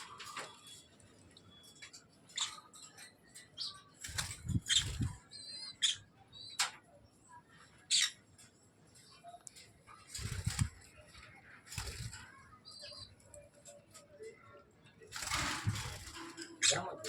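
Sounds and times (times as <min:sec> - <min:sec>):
birds chirping shrilly: 0:03.6 - 0:06.1, 0:10.1 - 0:10.8
wing flapping: 0:04.0 - 0:05.2, 0:10.1 - 0:11.1, 0:11.7 - 0:12.4, 0:15.1 - 0:17.0.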